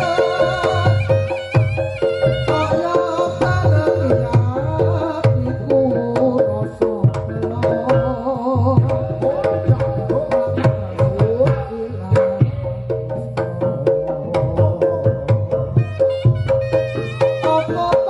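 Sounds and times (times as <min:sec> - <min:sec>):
reed pipe melody: 0:00.0 - 0:03.9, 0:15.6 - 0:18.0
hand drum strokes: 0:00.0 - 0:18.0.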